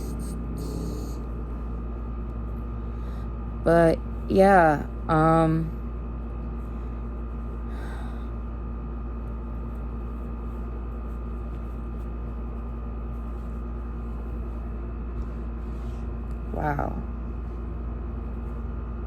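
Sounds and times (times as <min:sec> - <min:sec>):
low background hum: 0:00.0 - 0:19.0
soft breath: 0:02.7 - 0:03.4, 0:06.6 - 0:08.5, 0:15.1 - 0:16.2.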